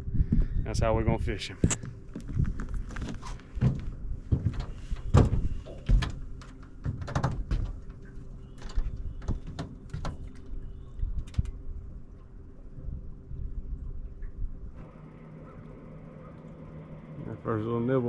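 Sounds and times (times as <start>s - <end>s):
low wind rumble: 0.0s - 15.9s
faint steady hum: 0.0s - 18.0s
fishing gear knocking in boat: 3.6s - 10.4s.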